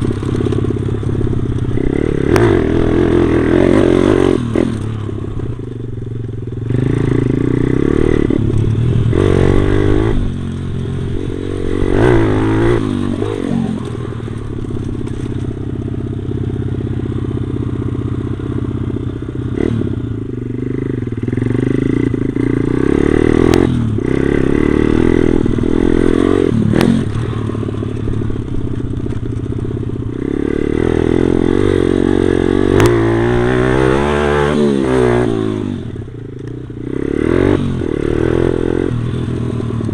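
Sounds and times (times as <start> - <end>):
small motorcycle engine revving: 0.0 - 39.9.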